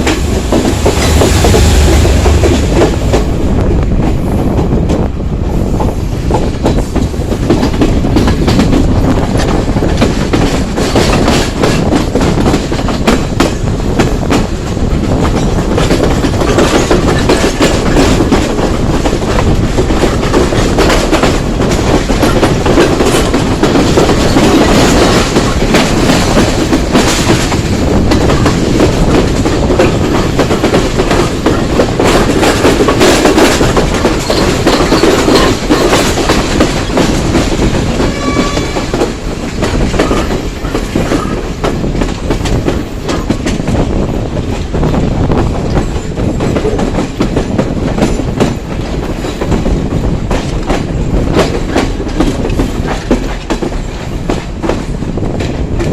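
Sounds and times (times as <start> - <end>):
train carriages rumbling and rattling: 0.0 - 55.9
wheels clicking over rail joints: 6.3 - 55.9.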